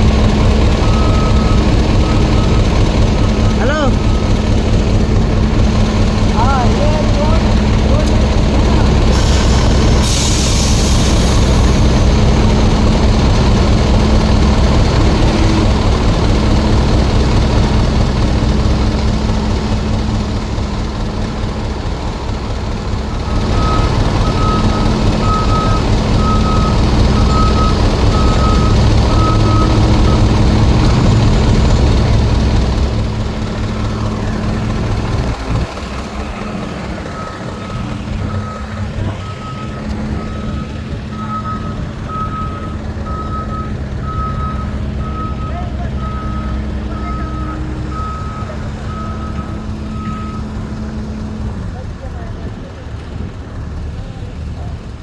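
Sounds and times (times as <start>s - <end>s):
diesel construction machine running: 0.0s - 55.0s
reversing alarm beeping: 0.4s - 4.9s, 23.3s - 31.2s, 36.4s - 51.1s.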